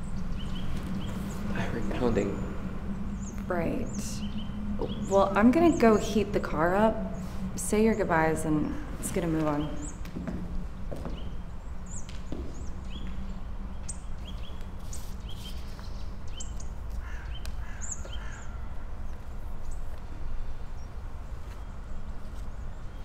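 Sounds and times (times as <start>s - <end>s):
low rumble: 0.0s - 14.9s
small birds chirping: 0.0s - 23.0s
lower bird calls: 11.1s - 23.0s.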